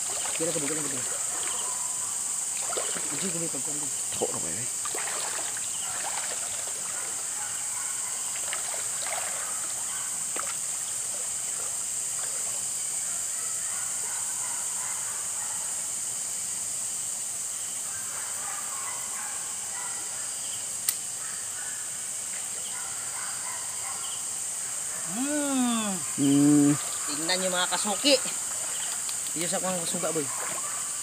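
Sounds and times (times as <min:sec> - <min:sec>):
wading through stream water: 0:00.0 - 0:01.9, 0:02.5 - 0:03.6, 0:04.2 - 0:07.4, 0:08.2 - 0:12.6, 0:26.6 - 0:30.6
night insects chorus: 0:00.0 - 0:31.0
sharp click: 0:20.8 - 0:21.0.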